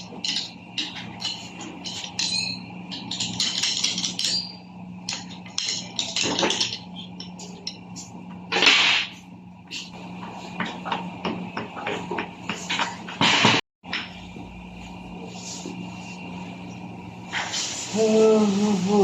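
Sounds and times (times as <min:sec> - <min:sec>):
hand tools clinking on metal: 0:00.0 - 0:07.9
steady low hum: 0:00.0 - 0:19.0.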